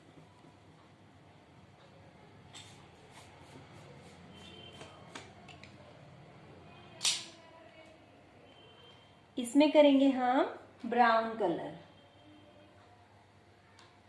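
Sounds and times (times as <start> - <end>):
drawing materials tapping on paper: 4.8 - 5.8.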